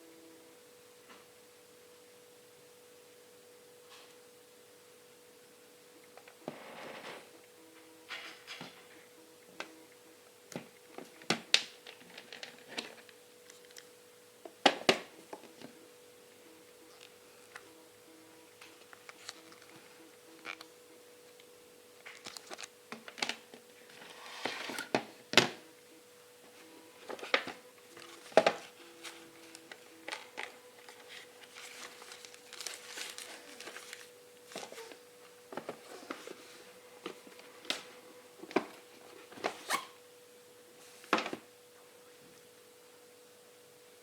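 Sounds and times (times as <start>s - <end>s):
faint steady tone: 0.0s - 11.0s
packaging rustling: 22.0s - 24.9s, 27.0s - 35.0s.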